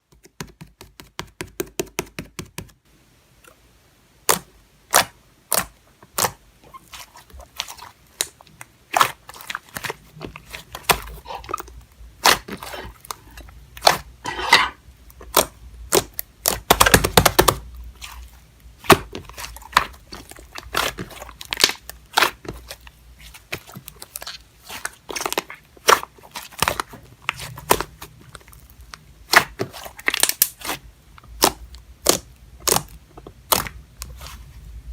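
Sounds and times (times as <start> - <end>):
slime clicking and popping: 31.4 - 33.8.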